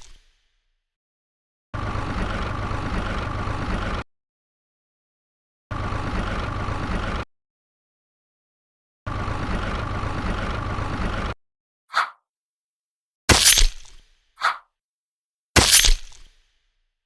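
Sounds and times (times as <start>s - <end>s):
engine running: 1.8s - 4.0s, 5.7s - 7.2s, 9.1s - 11.4s.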